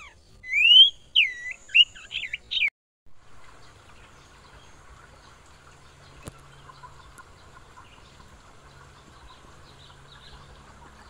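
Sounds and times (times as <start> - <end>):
bird chirps: 0.0 - 2.7.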